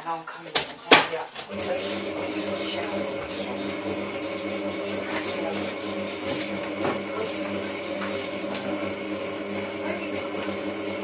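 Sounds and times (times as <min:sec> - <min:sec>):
washing machine motor hum: 0:01.4 - 0:11.0.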